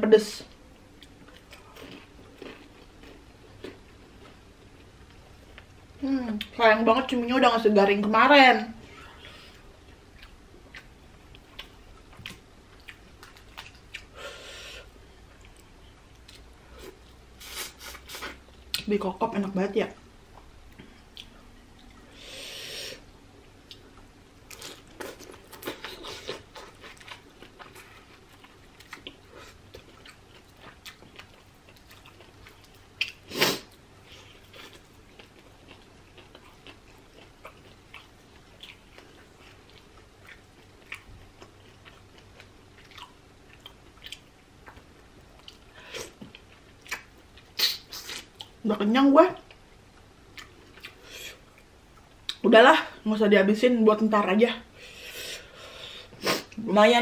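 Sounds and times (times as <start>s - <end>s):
chewing and wet mouth clicks: 34.5s - 45.6s.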